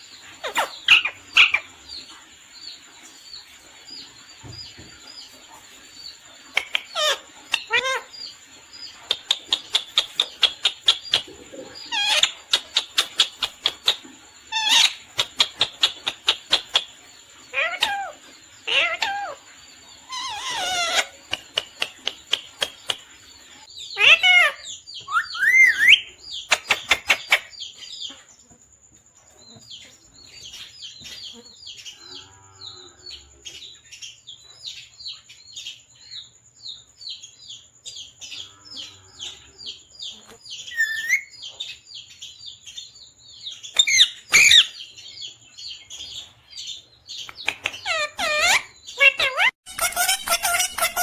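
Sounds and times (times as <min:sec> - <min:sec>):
parrot chirping: 0:00.4 - 0:01.7, 0:06.5 - 0:08.2, 0:08.9 - 0:23.1, 0:23.8 - 0:27.7, 0:40.0 - 0:41.4, 0:43.6 - 0:45.2, 0:47.1 - 0:51.0
sharp clicks: 0:47.2 - 0:47.8.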